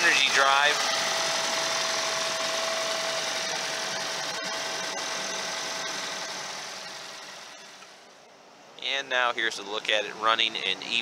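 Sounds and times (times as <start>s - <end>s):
car engine running: 0.0s - 8.2s.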